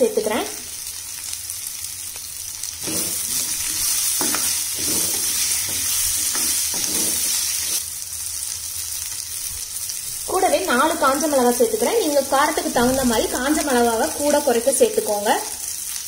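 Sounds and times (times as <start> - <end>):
vegetables sizzling in oil: 0.0 - 16.0
wooden spatula scraping pan: 2.8 - 7.8.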